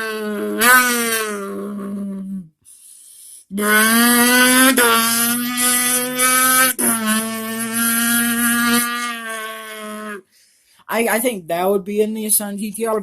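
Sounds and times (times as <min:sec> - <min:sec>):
man imitating car engine: 0:00.0 - 0:02.5, 0:03.5 - 0:10.2.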